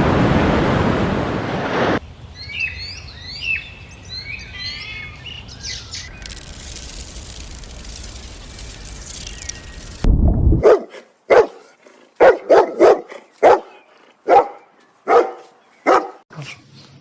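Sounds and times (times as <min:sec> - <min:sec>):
dog barking: 0:10.6 - 0:16.2.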